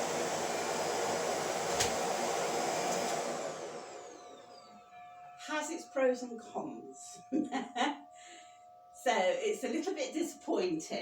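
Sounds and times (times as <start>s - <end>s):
vacuum cleaner motor running: 0.0s - 4.9s.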